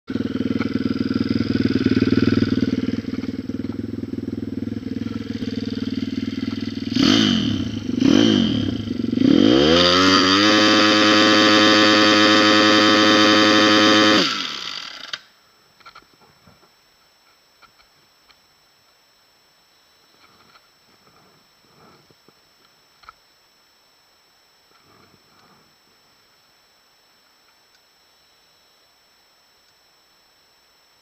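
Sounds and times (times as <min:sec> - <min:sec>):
motorcycle engine revving: 0:00.1 - 0:15.3.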